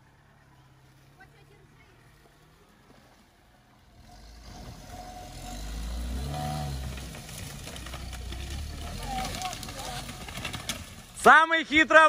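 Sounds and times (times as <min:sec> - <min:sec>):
off-road vehicle engine revving: 0:03.7 - 0:11.4.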